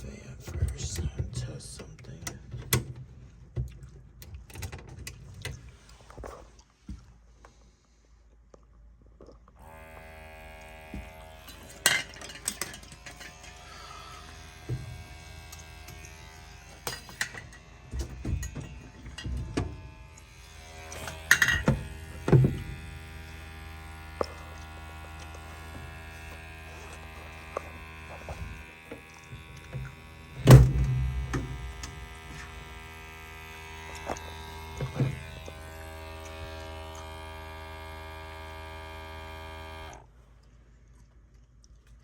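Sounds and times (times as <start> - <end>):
furnace fan motor humming: 9.6 - 40.1
clunks of furnace cabinet: 30.5 - 31.5.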